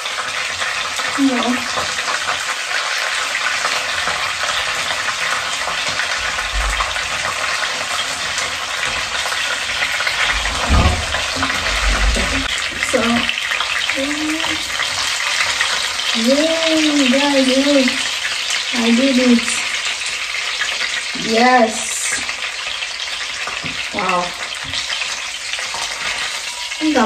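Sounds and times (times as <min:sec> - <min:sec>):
fish sizzling in hot oil: 0:00.0 - 0:27.0
dull bumps: 0:09.9 - 0:12.6.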